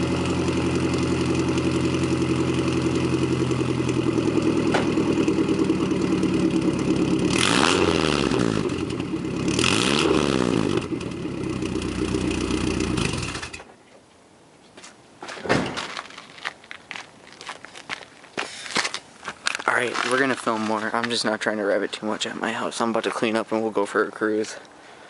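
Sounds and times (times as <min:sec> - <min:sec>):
truck engine idling and revving: 0:00.0 - 0:13.6.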